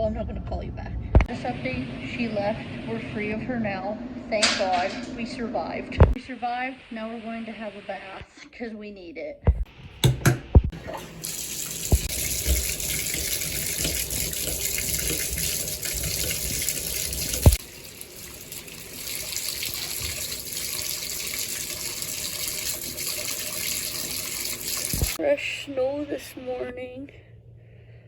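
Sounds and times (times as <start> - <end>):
tap water running into tub: 9.6 - 25.2
sharp knock: 10.0 - 10.7.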